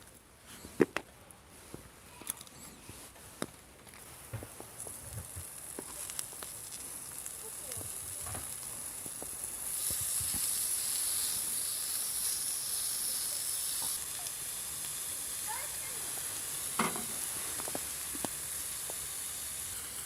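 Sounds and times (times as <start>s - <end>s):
food sizzling in a hot pan: 4.8s - 20.0s.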